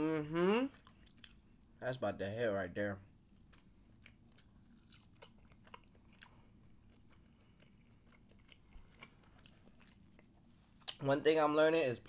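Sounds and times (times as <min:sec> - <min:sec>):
soft chewing mouth clicks: 0:00.7 - 0:01.7, 0:03.3 - 0:11.0.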